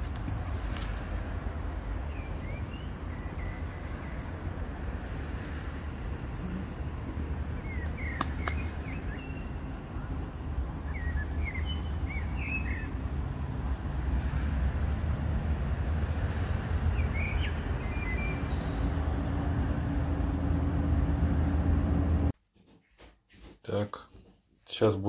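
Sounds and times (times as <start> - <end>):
small birds chirping: 2.0 - 4.4, 6.4 - 9.7, 10.9 - 13.0, 16.9 - 19.1
low rumble: 17.6 - 22.4.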